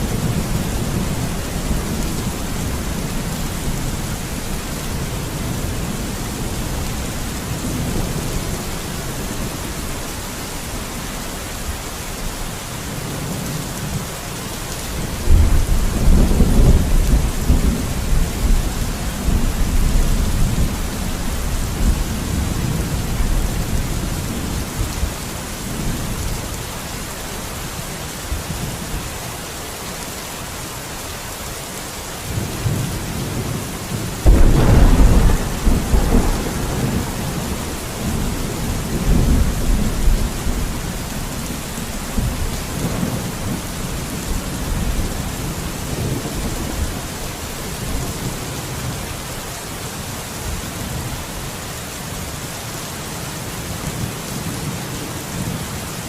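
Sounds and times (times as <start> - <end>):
heavy rain hissing: 0.0 - 56.0
thunder rumbling: 32.3 - 46.9.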